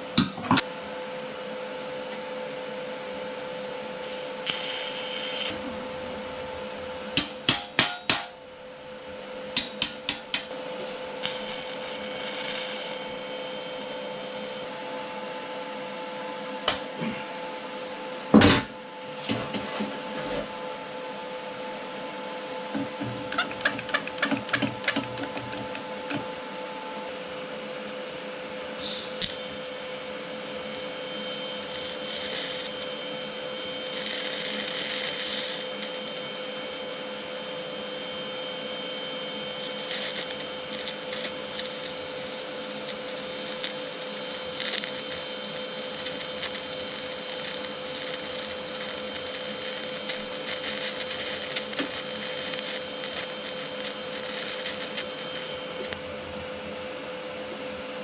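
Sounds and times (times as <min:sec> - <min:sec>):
steady machine hum: 0:00.0 - 0:19.2, 0:20.5 - 0:58.0.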